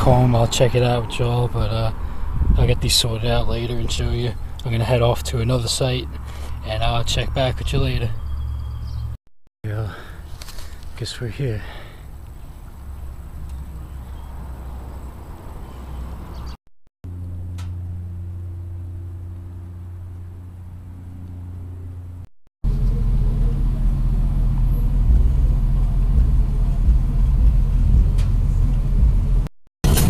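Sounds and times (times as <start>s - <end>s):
car engine idling: 17.1s - 30.0s.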